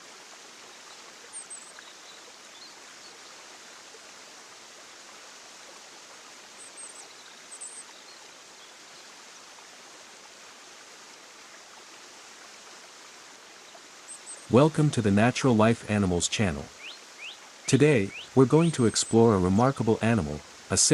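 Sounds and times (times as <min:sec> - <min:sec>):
steady rushing hiss: 0:12.8 - 0:20.9
high bird chirps: 0:16.8 - 0:18.4.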